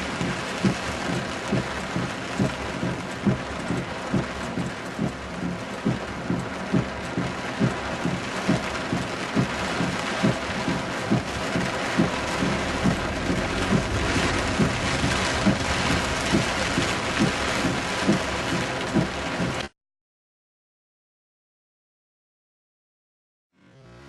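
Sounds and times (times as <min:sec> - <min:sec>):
heavy rain: 0:00.0 - 0:19.7
low knocking: 0:11.9 - 0:17.8.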